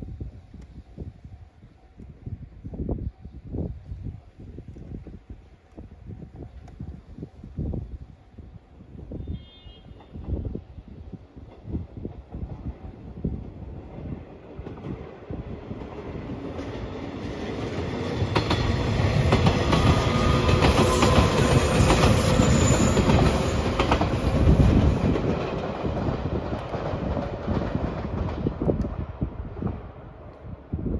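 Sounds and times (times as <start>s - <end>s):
electric train passing: 6.1s - 30.9s
wheels clacking over rail joints: 15.8s - 28.9s.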